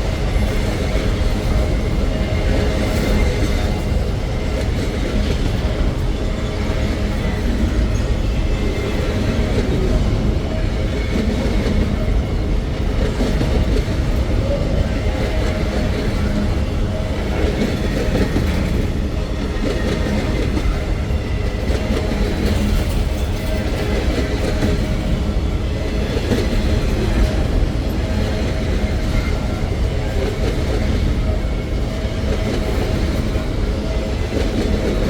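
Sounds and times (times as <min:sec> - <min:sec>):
freight train rumbling past: 0:00.0 - 0:35.0.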